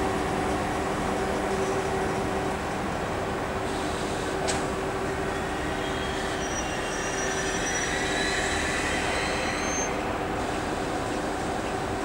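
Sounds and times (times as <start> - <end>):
train rumbling into platform: 0.0 - 12.0
wheel and brake squeals: 5.3 - 10.0.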